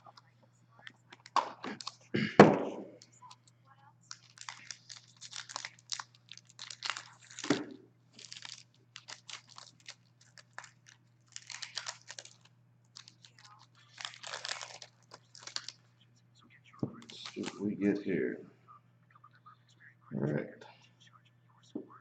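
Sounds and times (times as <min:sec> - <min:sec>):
card pack wrapper crinkling and tearing: 0:01.1 - 0:02.0, 0:04.1 - 0:15.8, 0:17.0 - 0:17.6.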